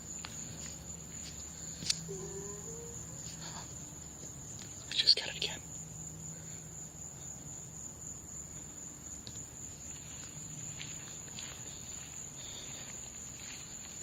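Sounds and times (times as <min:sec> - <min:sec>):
crickets trilling: 0:00.0 - 0:14.0
faint rustles and ticks: 0:09.2 - 0:14.0.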